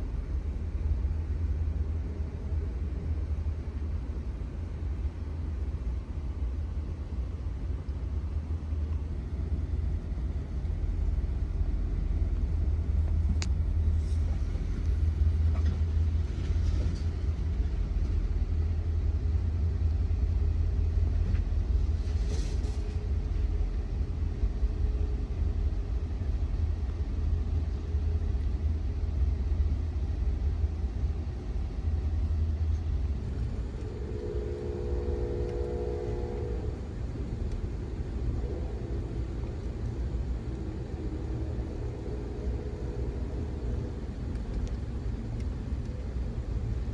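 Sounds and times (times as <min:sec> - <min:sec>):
passenger train rumbling: 0:00.0 - 0:46.9
faint click: 0:13.1 - 0:13.6
faint steady tones: 0:22.1 - 0:46.9.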